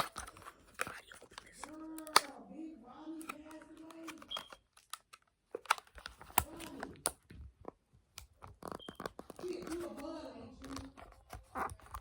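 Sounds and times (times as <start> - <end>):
candy wrapper crinkling and clicks: 0.0 - 2.3, 3.2 - 10.0.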